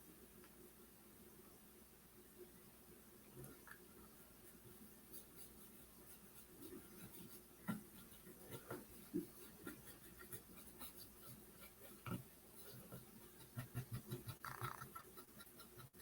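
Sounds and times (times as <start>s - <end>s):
soft taps and scrapes: 5.2s - 14.9s.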